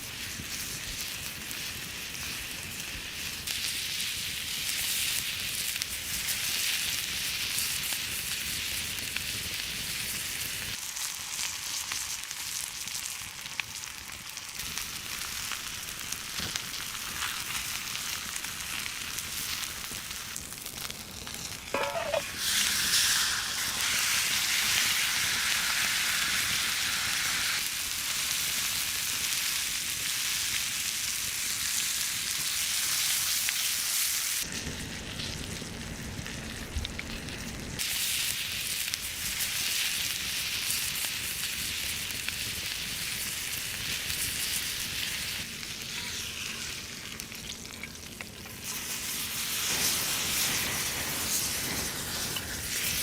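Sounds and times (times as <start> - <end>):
steak sizzling: 10.6 - 34.3, 35.4 - 53.0.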